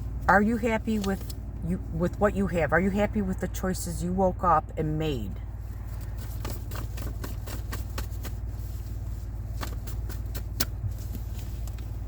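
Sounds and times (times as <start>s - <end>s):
low steady hum: 0.0s - 12.0s
cards being shuffled: 5.9s - 12.0s.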